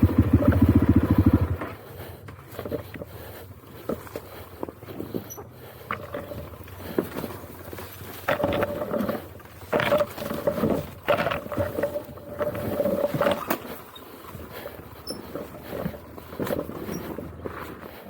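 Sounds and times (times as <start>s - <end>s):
motorcycle engine revving: 0.0s - 1.8s.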